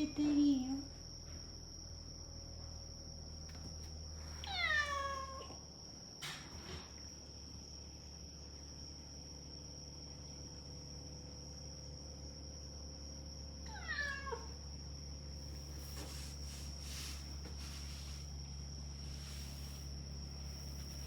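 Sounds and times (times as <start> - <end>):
cat meowing: 4.4 - 5.5, 13.7 - 14.5.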